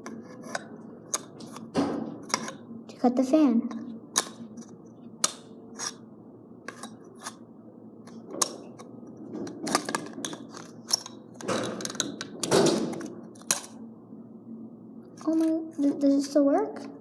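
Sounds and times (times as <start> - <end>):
scraping sounds: 5.7 - 6.0.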